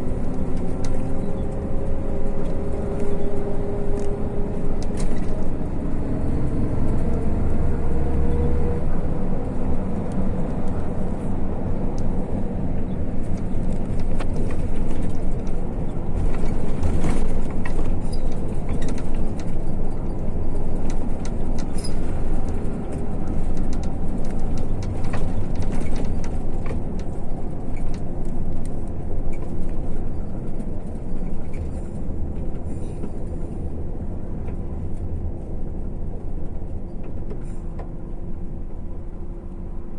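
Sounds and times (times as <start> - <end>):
bus engine and road rumble: 0.0 - 39.9
rattles and clicks: 13.2 - 33.6.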